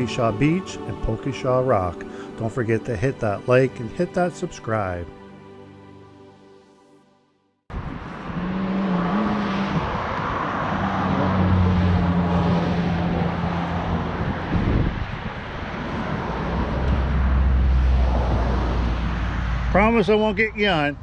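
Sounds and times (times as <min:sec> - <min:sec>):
road and wind noise: 0:00.0 - 0:05.2, 0:07.7 - 0:21.0
car engine hum: 0:07.7 - 0:20.1.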